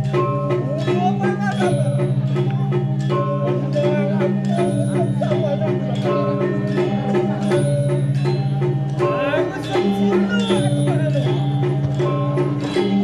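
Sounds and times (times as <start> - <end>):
gamelan playing: 0.0 - 13.0.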